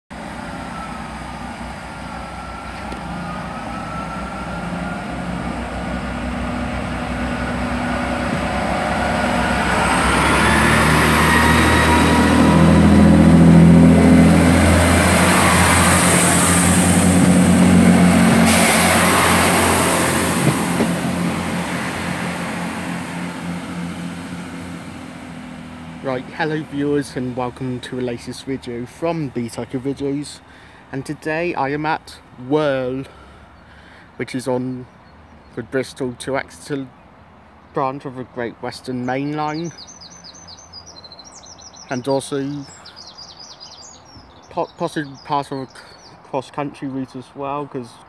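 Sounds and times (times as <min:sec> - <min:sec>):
diesel train engine: 0:00.1 - 0:44.1
train wheels on rails: 0:14.3 - 0:23.2.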